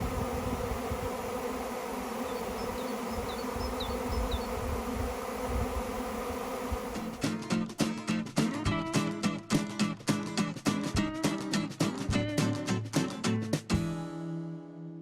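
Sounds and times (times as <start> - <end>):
bees buzzing: 0.0 - 7.4.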